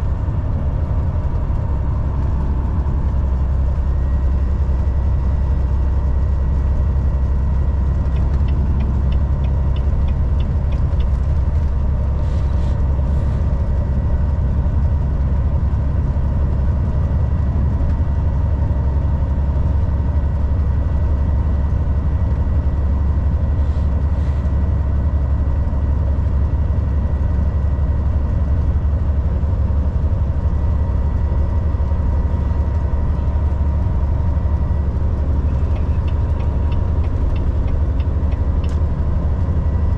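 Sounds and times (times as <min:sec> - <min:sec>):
truck engine and road rumble: 0:00.0 - 0:39.9.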